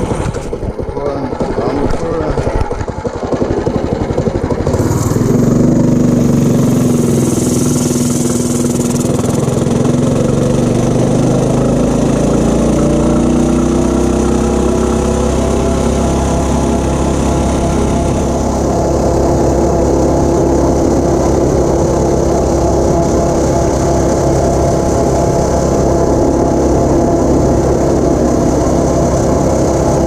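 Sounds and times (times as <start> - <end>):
mini bike engine accelerating: 0.0 - 30.0.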